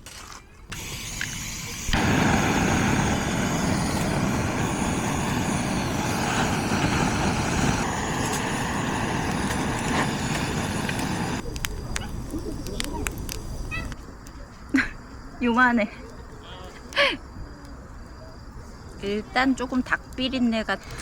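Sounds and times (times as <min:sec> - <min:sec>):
gas torch roaring hiss: 0:00.7 - 0:14.0.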